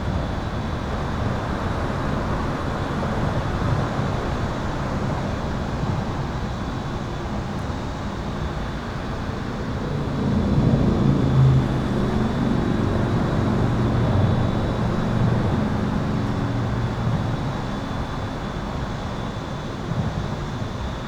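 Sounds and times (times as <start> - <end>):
highway traffic rumbling: 7.3 - 19.8
heavy vehicle passing: 8.7 - 18.8.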